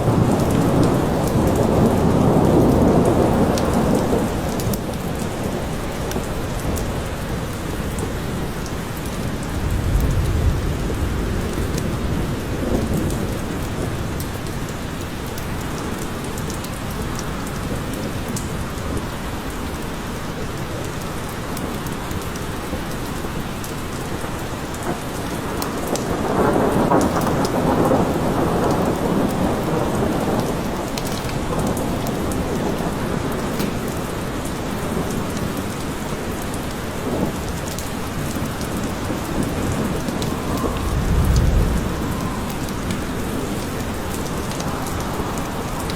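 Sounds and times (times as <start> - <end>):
rain falling: 0.0 - 45.9
thunder rolling: 9.4 - 14.2, 24.8 - 35.5, 38.2 - 45.9.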